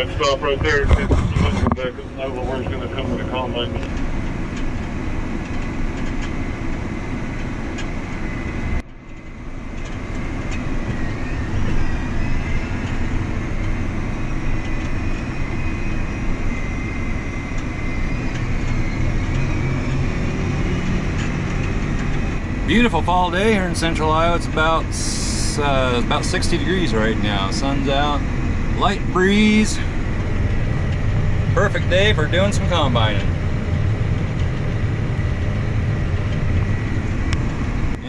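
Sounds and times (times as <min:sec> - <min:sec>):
diesel engine running: 0:00.0 - 0:38.0
faint steady whine: 0:00.0 - 0:38.0.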